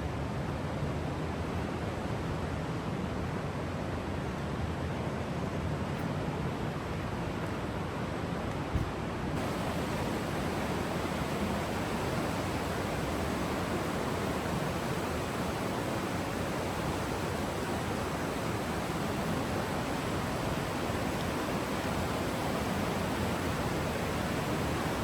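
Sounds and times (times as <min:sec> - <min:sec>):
stream water rushing over rocks: 0:09.4 - 0:25.0.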